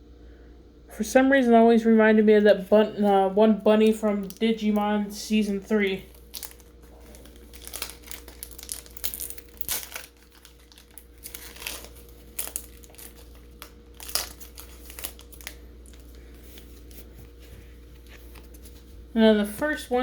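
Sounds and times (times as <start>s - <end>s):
foil wrapper crinkling and tearing: 3.2s - 18.8s.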